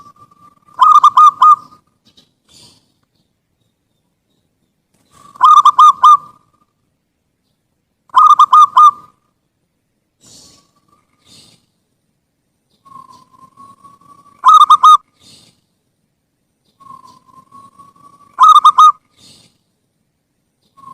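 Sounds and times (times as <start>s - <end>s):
dove cooing: 0.0s - 2.9s, 5.1s - 6.6s, 8.1s - 9.2s, 12.8s - 15.5s, 16.8s - 19.6s.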